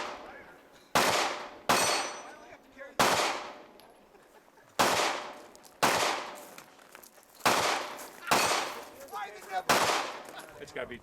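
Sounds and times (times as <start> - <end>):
gunshots with echo: 1.0 - 2.3, 3.0 - 3.6, 4.8 - 6.4, 7.4 - 8.8, 9.7 - 10.2.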